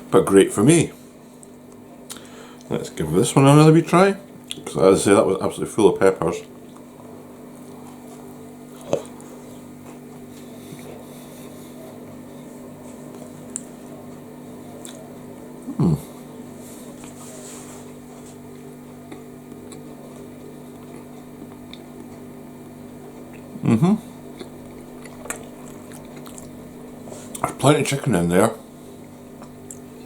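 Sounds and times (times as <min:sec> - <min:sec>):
steady low hum: 0:00.0 - 0:30.0
person chewing soft bun: 0:06.5 - 0:27.5, 0:28.7 - 0:30.0
faint mouth noises: 0:14.8 - 0:16.3.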